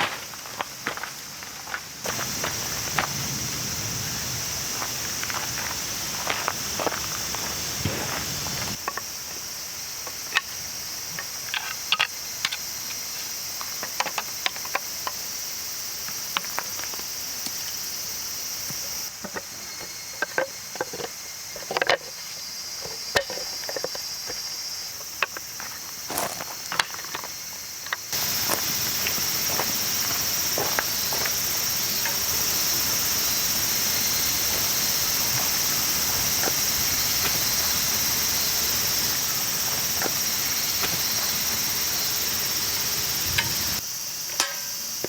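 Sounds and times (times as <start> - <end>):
high-pitched insect chorus: 0.0 - 45.0
clicks and knocks of handling: 19.2 - 22.2.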